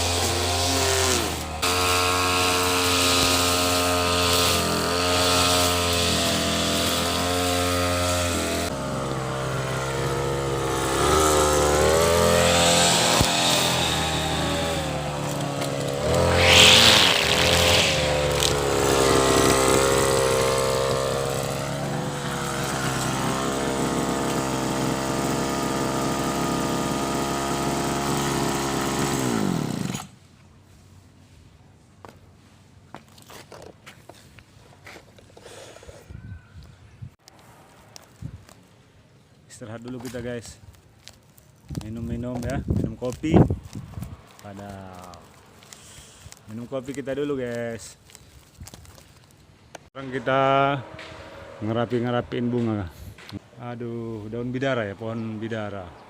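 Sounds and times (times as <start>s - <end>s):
brush cutter engine cutting grass: 0.0s - 30.2s, 39.9s - 53.4s.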